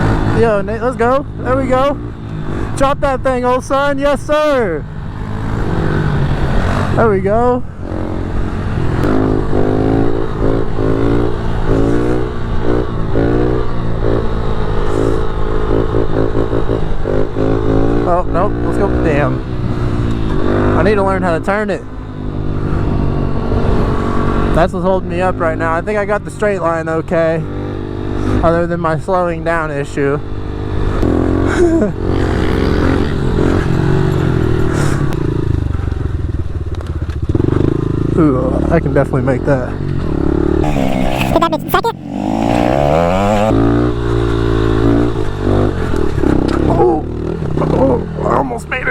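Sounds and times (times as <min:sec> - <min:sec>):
pit bike engine revving: 0:40.3 - 0:46.6.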